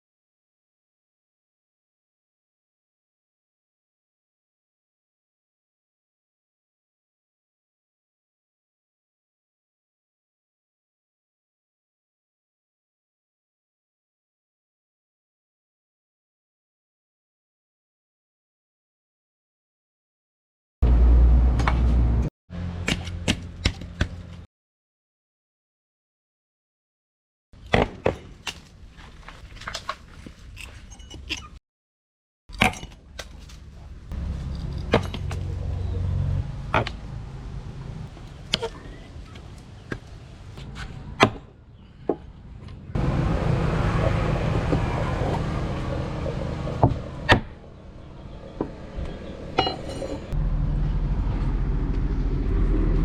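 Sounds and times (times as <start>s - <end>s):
hammer striking steel: 49.6s - 50.4s.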